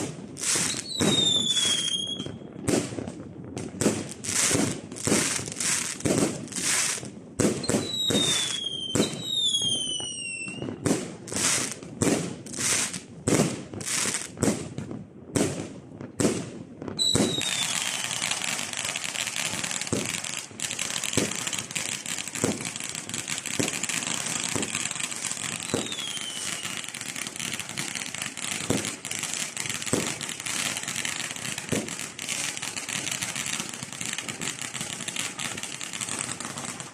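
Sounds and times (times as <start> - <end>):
fireworks banging: 0.0 - 36.9
fireworks crackling: 0.0 - 36.9
falling whistles: 0.6 - 2.4, 7.7 - 10.7, 17.0 - 19.6, 25.6 - 26.9.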